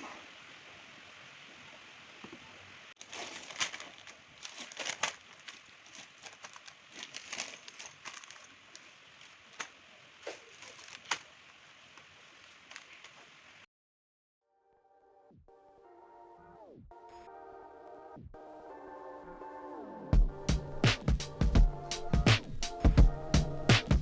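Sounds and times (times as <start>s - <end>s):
steady hiss: 0.0s - 13.7s, 20.4s - 24.0s
clicks and crinkling: 3.0s - 13.4s.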